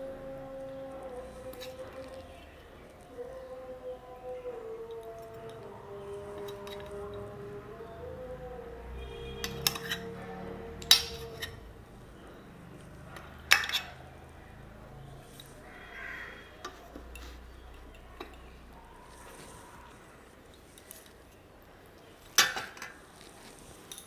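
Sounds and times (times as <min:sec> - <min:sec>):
utensils clinking on dishes: 0:04.9 - 0:07.2, 0:09.3 - 0:10.2, 0:10.8 - 0:11.7, 0:12.8 - 0:14.1, 0:16.6 - 0:19.6, 0:22.2 - 0:24.0.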